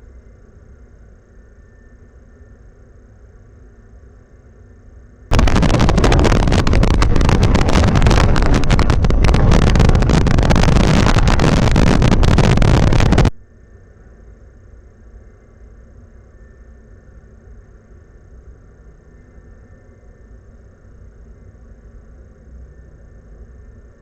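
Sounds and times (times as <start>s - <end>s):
wind buffeting microphone: 5.3s - 13.3s.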